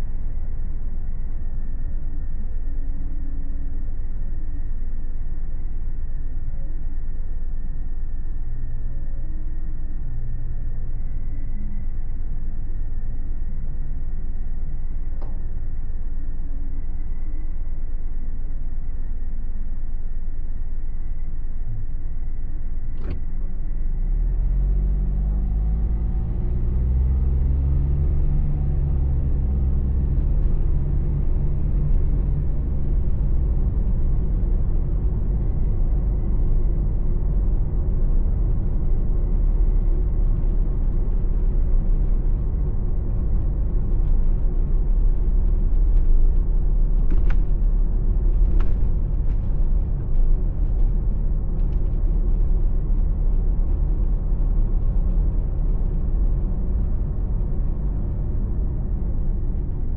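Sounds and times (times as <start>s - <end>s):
car engine: 21.8s - 59.9s
tyre road noise: 23.0s - 59.9s.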